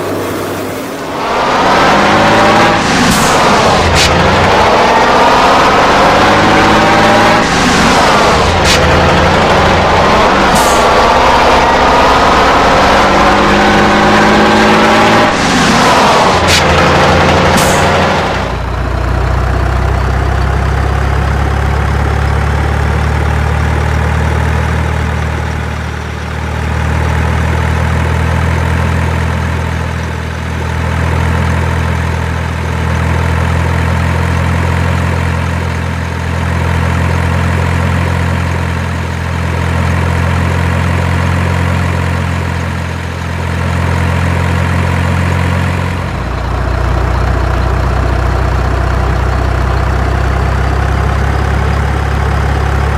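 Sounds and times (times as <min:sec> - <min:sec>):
heavy engine idling: 0:16.4 - 0:52.9.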